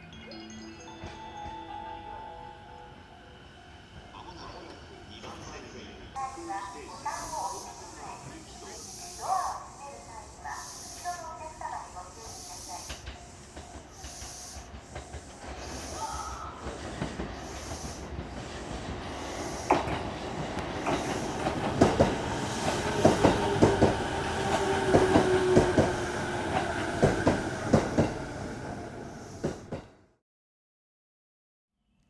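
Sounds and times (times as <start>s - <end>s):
train wheels clacking over rail joints: 6.2s - 28.3s.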